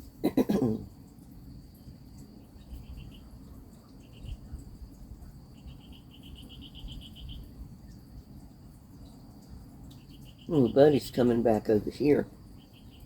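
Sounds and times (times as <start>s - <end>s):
insects trilling: 0.0s - 13.0s
low background rumble: 0.0s - 13.0s.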